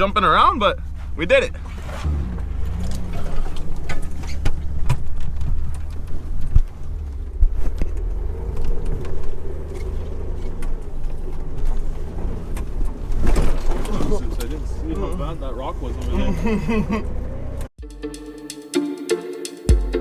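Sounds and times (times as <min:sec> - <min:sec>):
mid-pitched engine note: 0:00.0 - 0:17.7
vehicle engine low rumble: 0:00.0 - 0:17.8
knocks and clunks over rocks: 0:00.8 - 0:15.2.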